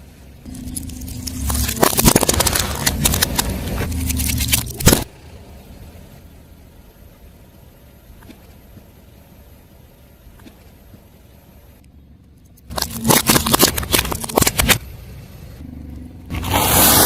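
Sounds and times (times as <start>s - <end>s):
car engine running: 0.0s - 17.0s
tyre crushing crunchy objects: 0.5s - 5.1s, 12.7s - 14.8s, 16.3s - 17.0s.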